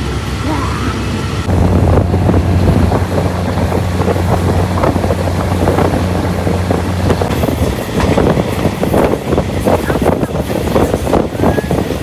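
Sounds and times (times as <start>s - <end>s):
diesel train engine drone: 0.0s - 12.0s
wind rushing over microphone: 1.0s - 12.0s
train wheels clattering on track: 2.9s - 12.0s.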